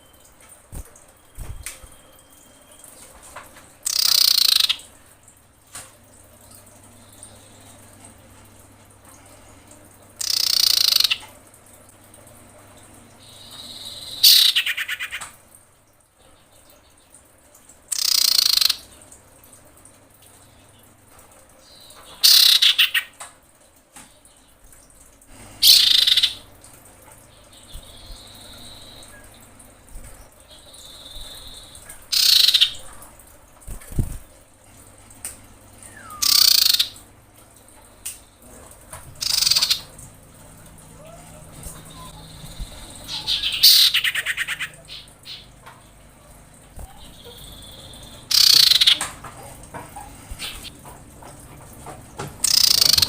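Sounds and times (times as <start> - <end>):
bird chattering call: 3.9 - 4.8, 10.2 - 11.2, 13.9 - 15.2, 18.0 - 18.8, 22.2 - 23.1, 25.6 - 26.4, 32.1 - 32.8, 35.9 - 37.0, 39.2 - 39.9, 41.9 - 45.5, 46.8 - 49.0, 52.4 - 53.0
thin bird whistle: 35.8 - 36.5.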